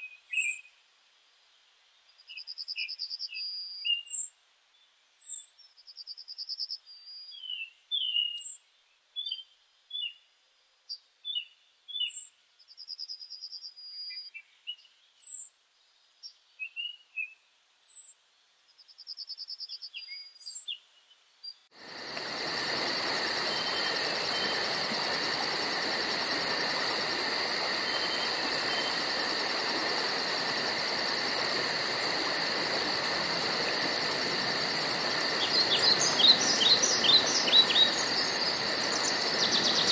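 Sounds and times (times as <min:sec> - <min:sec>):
birds chirping: 0:19.7 - 0:29.6, 0:35.1 - 0:39.9
insects pulsing chorus: 0:21.8 - 0:39.9.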